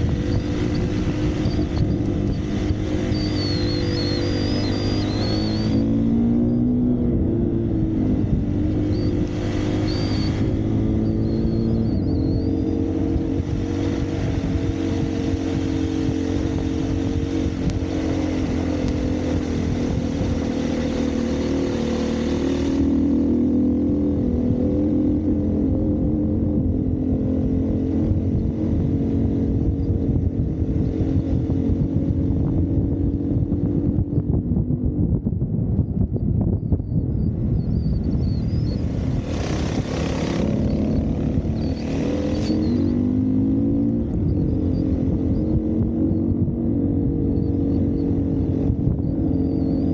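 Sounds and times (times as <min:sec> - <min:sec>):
dirt bike engine running: 0:00.0 - 0:49.9.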